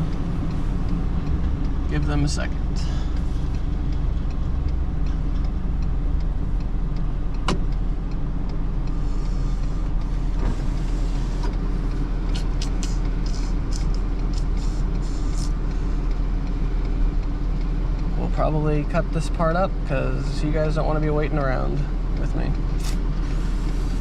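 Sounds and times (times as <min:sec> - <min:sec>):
vehicle engine idling: 0:00.0 - 0:24.0
sharp click: 0:22.8 - 0:23.1.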